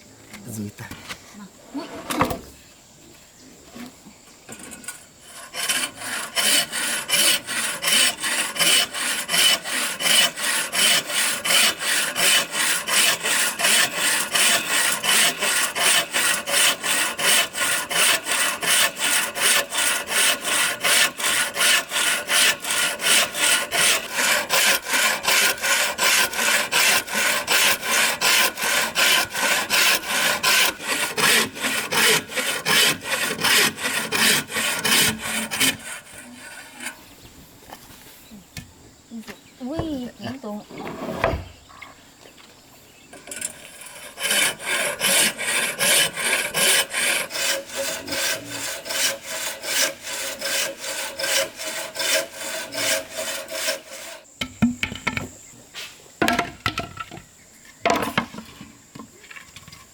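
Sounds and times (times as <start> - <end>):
hand tool rasping strokes: 4.5 - 37.1, 43.1 - 54.3.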